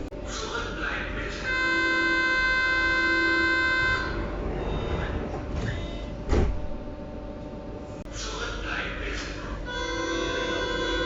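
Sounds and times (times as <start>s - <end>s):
loud thump: 6.3s - 6.8s.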